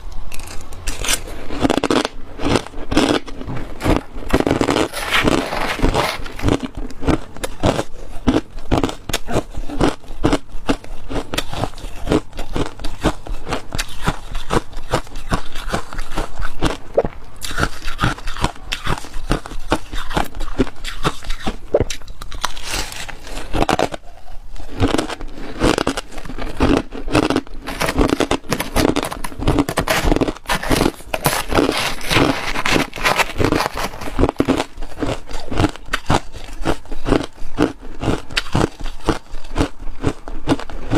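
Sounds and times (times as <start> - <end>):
ice crunching being chewed: 0.3 - 40.9.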